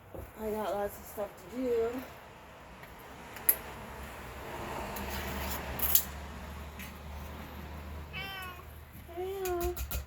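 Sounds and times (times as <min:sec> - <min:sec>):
soft scraping and rustling: 0:05.0 - 0:05.8.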